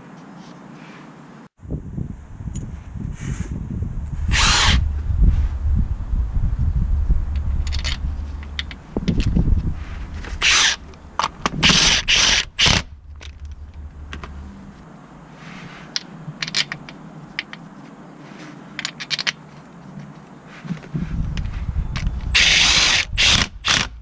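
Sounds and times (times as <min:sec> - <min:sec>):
loud noisy bursts: 0:04.2 - 0:06.1, 0:09.7 - 0:14.8, 0:22.3 - 0:24.0
tools scraping and clinking: 0:07.3 - 0:14.8, 0:15.5 - 0:22.7.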